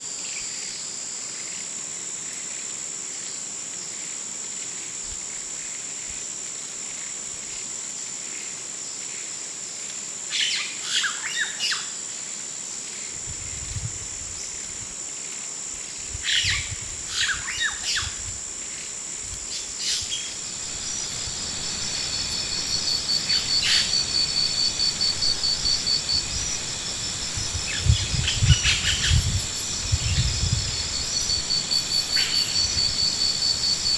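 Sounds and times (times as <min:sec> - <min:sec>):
insect drone: 0:00.0 - 0:33.9
cricket-like trill: 0:13.0 - 0:33.9
bird chirps: 0:19.8 - 0:33.9.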